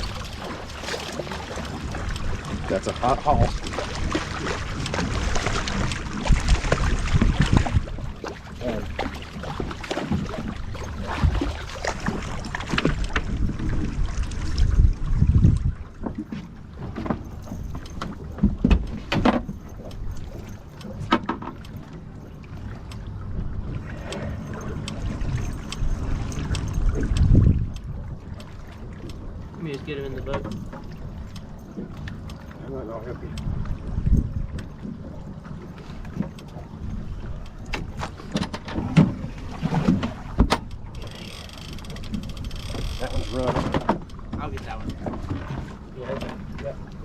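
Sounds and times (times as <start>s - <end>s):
wind buffeting microphone: 0.0s - 16.8s, 23.2s - 29.4s, 33.1s - 41.0s
knocks and clatter on a boat: 0.0s - 47.0s
knocks and clicks of gear: 15.5s - 22.1s, 24.0s - 29.2s, 30.3s - 32.5s, 37.4s - 45.4s.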